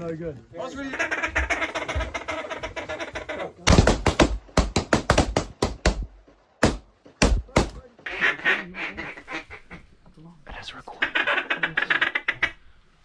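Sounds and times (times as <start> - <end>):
sharp knocks and clacks: 3.7 - 7.9.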